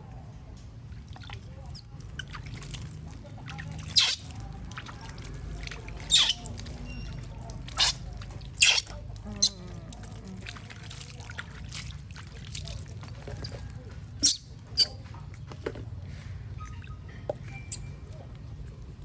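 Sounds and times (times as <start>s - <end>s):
water splashing: 2.2s - 15.0s.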